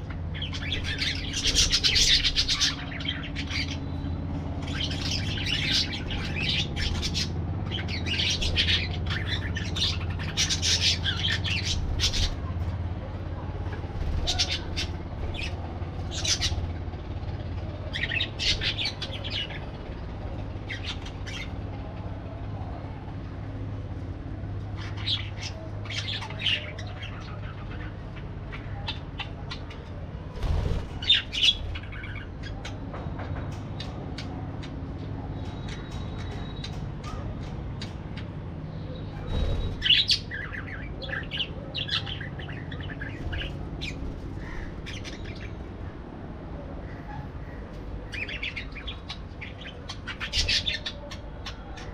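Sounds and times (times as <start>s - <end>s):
parakeets chattering and squawking: 0.0s - 51.9s
steady low hum: 0.0s - 51.9s.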